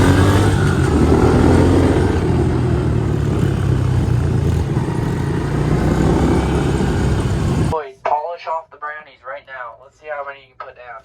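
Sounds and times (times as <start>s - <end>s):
small motorcycle engine running: 0.0s - 7.7s.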